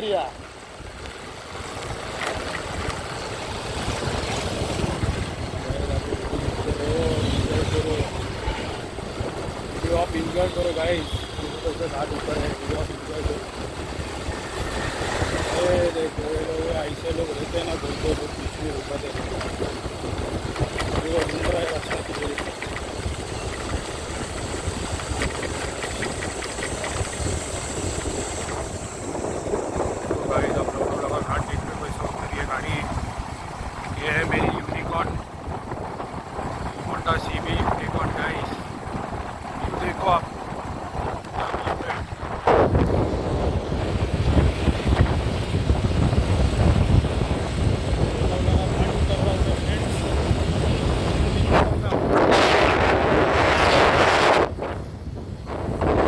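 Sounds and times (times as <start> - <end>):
motorcycle engine rumble: 0.0 - 56.0
motorcycle road noise: 0.0 - 56.0
wind rushing over microphone: 0.0 - 56.0.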